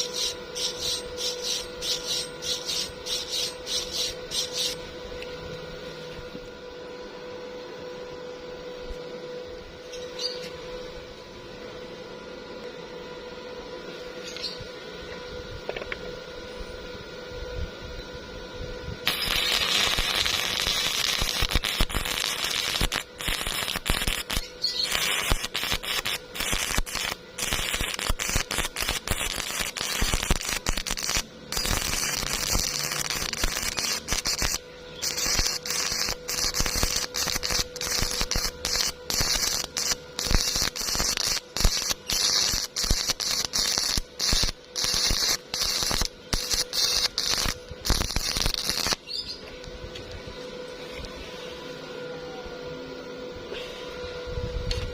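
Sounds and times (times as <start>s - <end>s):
welding arc crackling and hissing: 0.0s - 4.9s, 19.0s - 49.2s.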